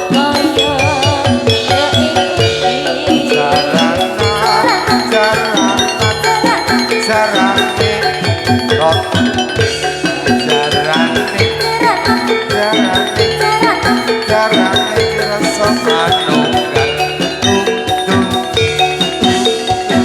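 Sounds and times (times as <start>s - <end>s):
drums: 0.0s - 20.0s
metallophones striking a melody: 0.0s - 20.0s
person singing: 0.0s - 20.0s.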